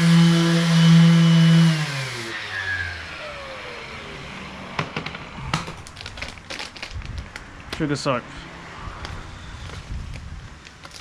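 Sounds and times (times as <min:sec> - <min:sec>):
electric motor winding down: 0:00.0 - 0:04.8.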